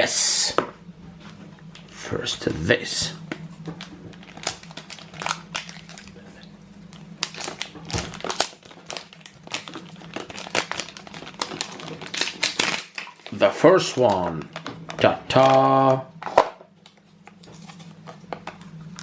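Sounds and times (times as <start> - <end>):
wrapper crinkling and rustling: 3.6 - 16.0.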